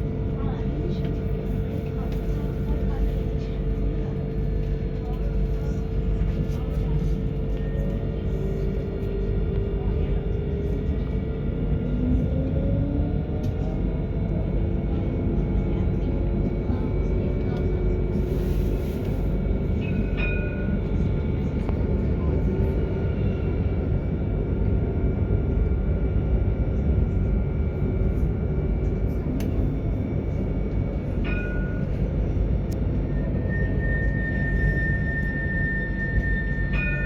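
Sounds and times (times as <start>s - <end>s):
tram wheels rumbling on rail: 0.0s - 37.0s.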